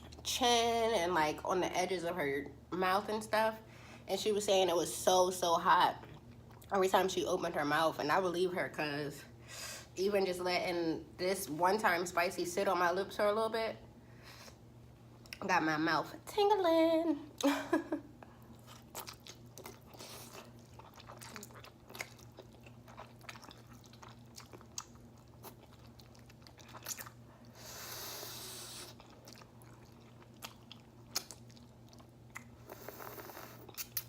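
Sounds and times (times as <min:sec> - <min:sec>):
chewing and wet mouth sounds: 0:05.9 - 0:06.8, 0:18.4 - 0:34.0
breathy hiss: 0:27.5 - 0:28.9.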